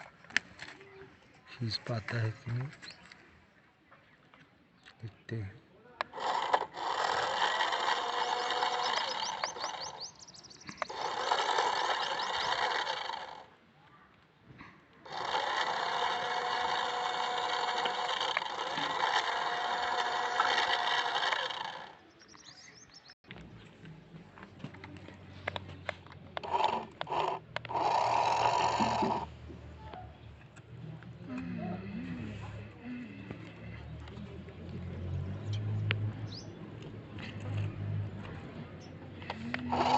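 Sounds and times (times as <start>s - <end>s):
toy motor whirring: 6.0s - 13.5s, 15.0s - 22.1s, 26.4s - 29.4s, 39.2s - 39.9s.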